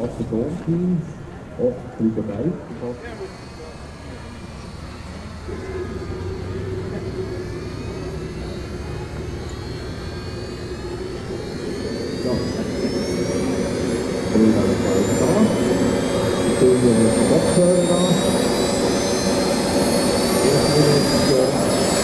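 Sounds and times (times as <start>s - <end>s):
model jet turbine whine: 0.0s - 22.0s.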